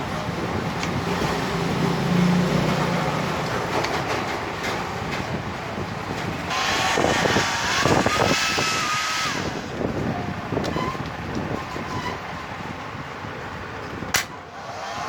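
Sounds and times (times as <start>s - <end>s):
hair dryer running: 6.5s - 8.6s.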